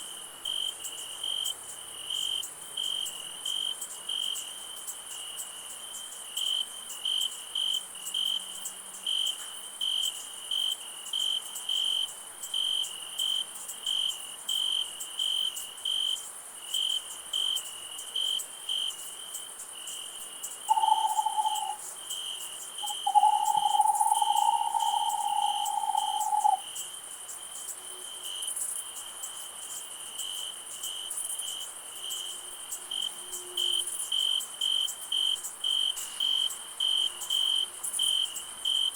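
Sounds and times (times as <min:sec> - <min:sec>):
crickets chirping: 0:00.1 - 0:38.9
high insect hiss: 0:00.1 - 0:38.9
owl hooting: 0:20.7 - 0:21.8, 0:22.8 - 0:26.6.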